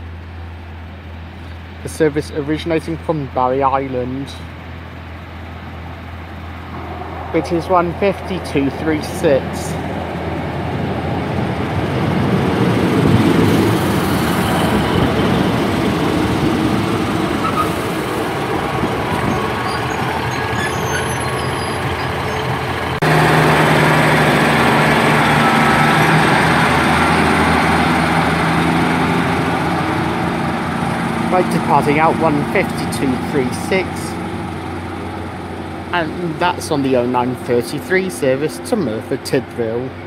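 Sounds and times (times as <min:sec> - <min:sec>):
diesel train engines running: 0:00.0 - 0:40.0.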